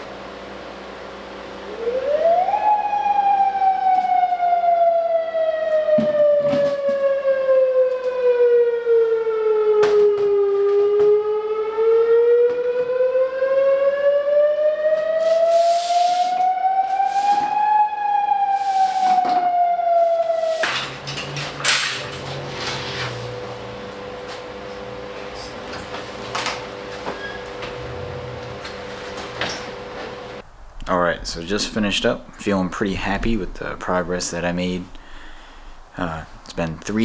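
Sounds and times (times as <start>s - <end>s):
siren wailing: 1.6s - 30.0s.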